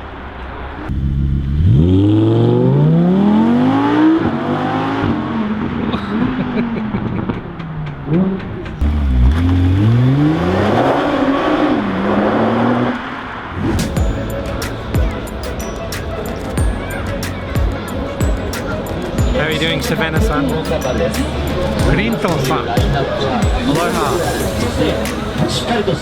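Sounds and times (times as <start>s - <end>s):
car engine revving: 0.9s - 15.2s.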